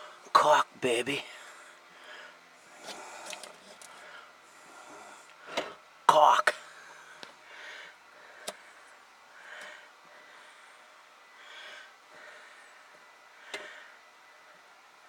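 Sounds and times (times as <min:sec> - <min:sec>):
person breathing: 0:01.2 - 0:05.8, 0:06.6 - 0:14.0.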